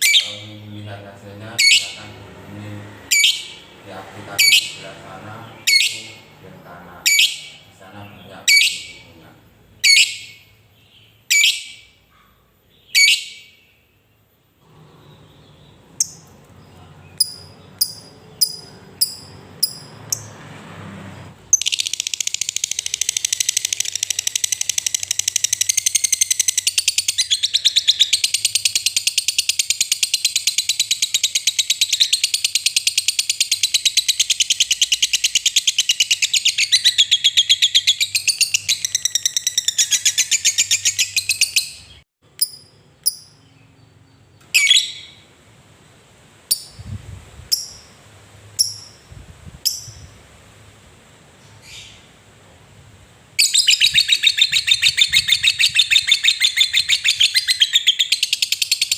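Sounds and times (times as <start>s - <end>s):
lovebird chirping: 0.0s - 2.2s, 3.0s - 20.4s, 21.4s - 45.3s, 46.5s - 46.9s, 47.5s - 48.0s, 48.6s - 50.3s, 51.4s - 52.2s, 53.4s - 58.9s
lovebird pulsing high chatter: 17.2s - 20.3s, 21.5s - 43.4s.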